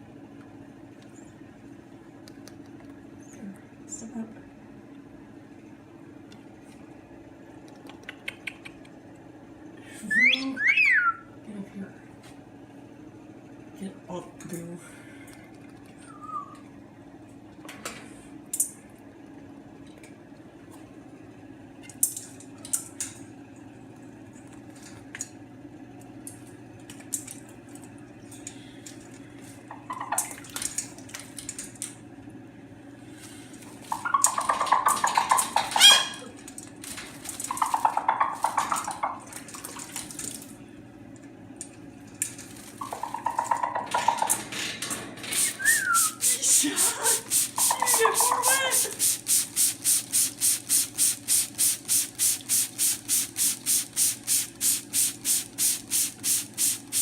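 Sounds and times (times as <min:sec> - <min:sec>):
water running and splashing: 0:37.2 - 0:40.5, 0:45.4 - 0:57.0.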